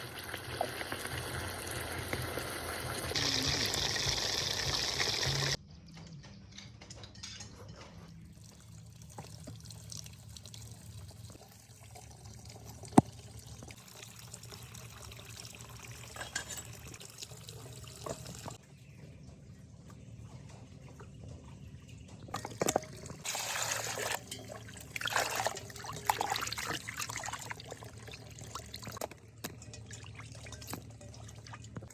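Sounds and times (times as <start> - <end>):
water pouring: 0.0 - 5.6, 8.3 - 18.6, 22.3 - 31.9
water trickling and dripping: 0.0 - 5.6, 8.2 - 18.6, 19.9 - 31.9.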